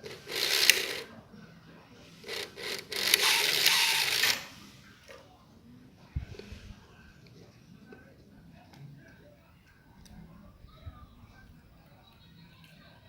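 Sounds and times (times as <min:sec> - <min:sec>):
small motor whirring: 0:00.0 - 0:01.0, 0:02.2 - 0:04.6.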